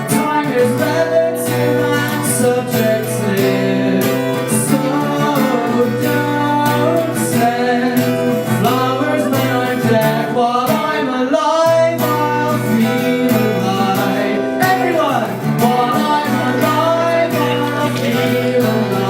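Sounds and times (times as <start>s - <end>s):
acoustic guitar strumming: 0.0s - 19.0s
person singing: 0.0s - 19.0s.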